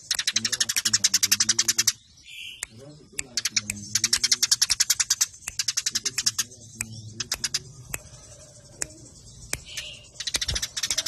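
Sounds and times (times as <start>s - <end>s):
sparrows chirping rapidly: 0.0s - 11.0s.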